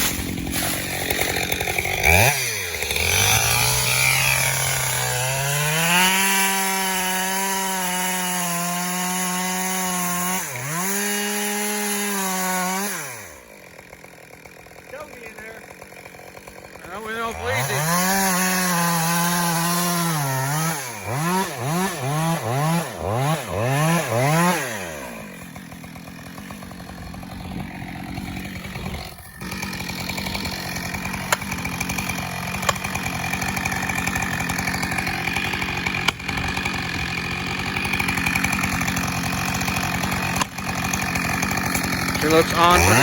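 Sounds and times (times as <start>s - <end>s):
chainsaw revving: 0.0s - 43.0s.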